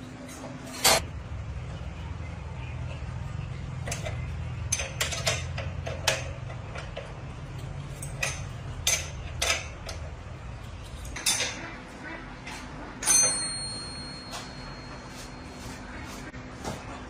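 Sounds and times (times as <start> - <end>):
steady low hum: 0.0 - 17.0
metal tools clinking: 3.8 - 11.7, 13.0 - 15.6.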